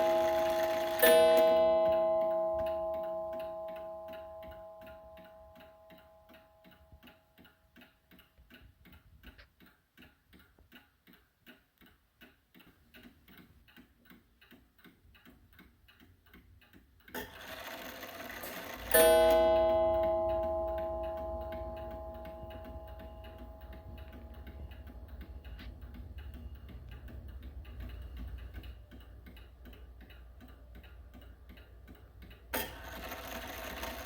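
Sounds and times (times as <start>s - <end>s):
clock striking: 0.0s - 7.4s, 17.1s - 34.0s
clock ticking: 0.0s - 34.0s.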